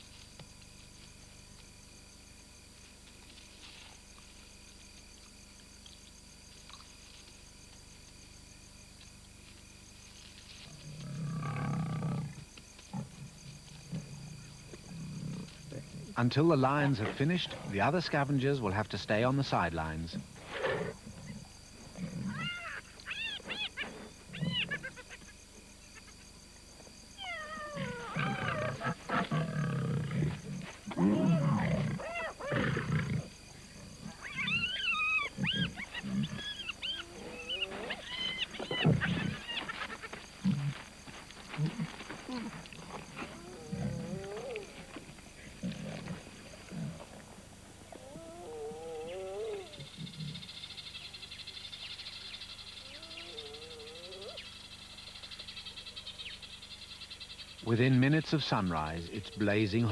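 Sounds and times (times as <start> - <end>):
lions growling: 10.6 - 25.1, 27.2 - 40.9, 41.5 - 50.8, 52.8 - 54.5
hyena calling: 13.9 - 26.2, 27.2 - 40.8, 47.9 - 51.2, 52.6 - 54.6, 57.6 - 59.9
high-pitched yelping calls: 22.3 - 25.3, 27.2 - 29.0, 34.2 - 40.2.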